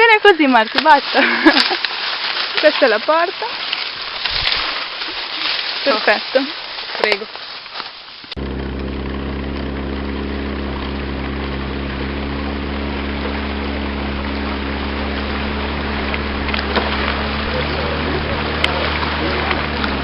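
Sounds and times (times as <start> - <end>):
motorboat engine running: 8.4 - 20.0.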